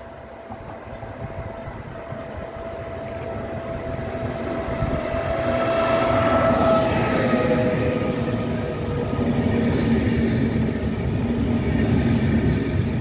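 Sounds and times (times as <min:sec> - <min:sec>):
electric locomotive whine: 0:00.0 - 0:13.0.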